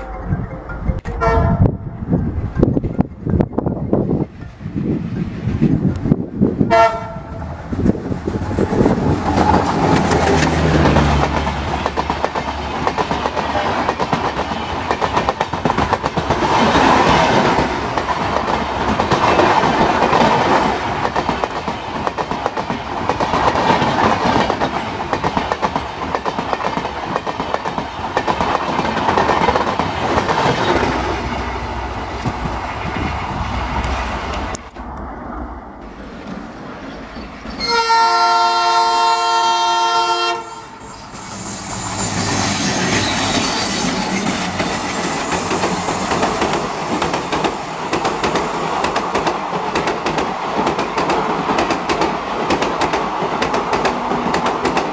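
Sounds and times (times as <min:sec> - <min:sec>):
train wheels clattering over rail joints: 0:07.8 - 0:31.2.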